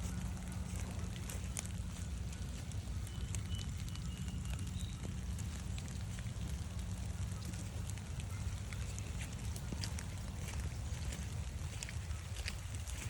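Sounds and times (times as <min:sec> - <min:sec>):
light rain pattering: 0:00.0 - 0:13.0.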